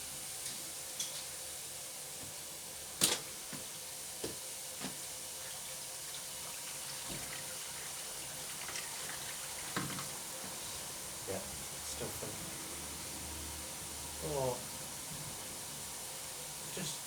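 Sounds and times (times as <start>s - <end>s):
water running into washing machine: 4.8s - 12.1s.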